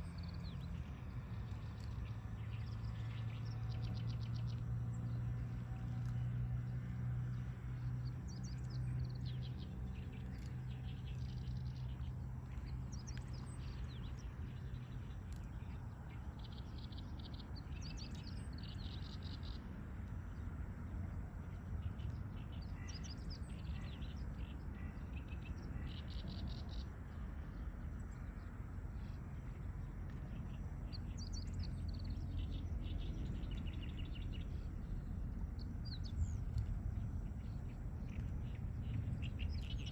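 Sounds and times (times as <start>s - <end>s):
low steady hum: 0.0s - 39.9s
steady low rumble: 0.0s - 39.9s
small birds chirping and singing: 7.3s - 20.2s, 21.6s - 39.9s.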